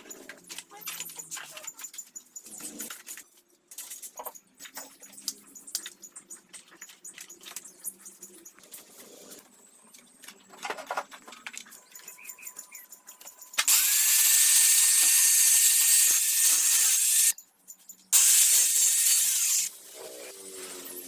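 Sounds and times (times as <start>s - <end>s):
power tool whining: 13.6s - 17.3s, 18.2s - 19.8s.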